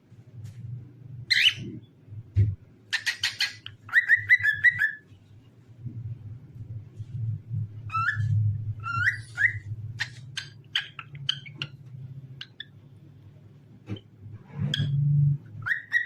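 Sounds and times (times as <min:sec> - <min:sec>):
cockatiel chirping: 0:01.3 - 0:01.7, 0:02.9 - 0:05.0, 0:07.9 - 0:12.7, 0:15.6 - 0:16.0
cockatiel whistling: 0:03.0 - 0:05.0, 0:07.9 - 0:10.2, 0:15.6 - 0:16.0.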